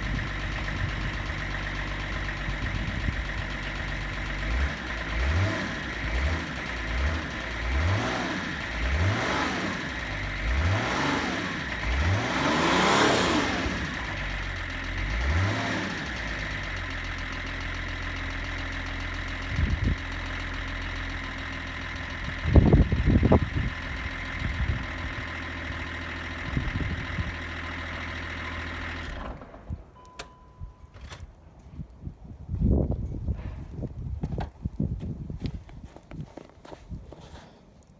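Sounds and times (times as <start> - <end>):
diesel engine idling: 0.0 - 29.6
diesel engine revving: 0.0 - 29.8.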